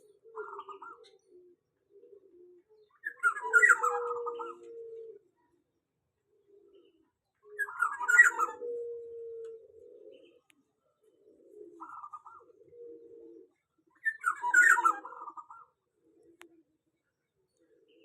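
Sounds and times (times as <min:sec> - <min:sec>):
oriole calling: 0:03.0 - 0:04.8, 0:07.6 - 0:10.5.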